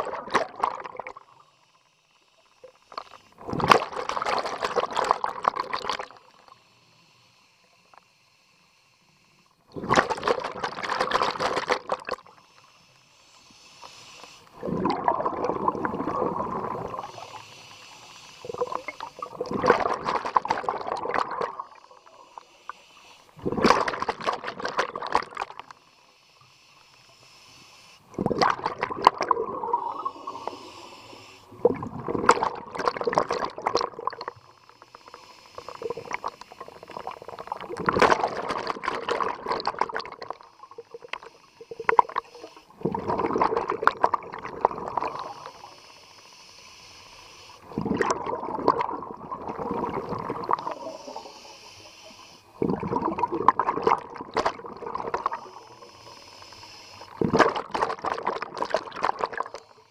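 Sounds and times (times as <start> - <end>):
exhaled bubbles underwater: 0.0 - 1.4, 2.6 - 6.5, 9.7 - 12.4, 14.5 - 17.8, 18.4 - 22.5, 23.4 - 25.7, 28.1 - 45.8, 47.6 - 51.6, 52.6 - 56.0, 57.0 - 59.7
regulator hiss: 12.3 - 14.6, 16.8 - 19.4, 21.7 - 23.4, 25.7 - 28.1, 29.8 - 31.6, 34.4 - 37.6, 40.5 - 42.8, 45.1 - 47.7, 50.6 - 52.6, 55.2 - 57.2.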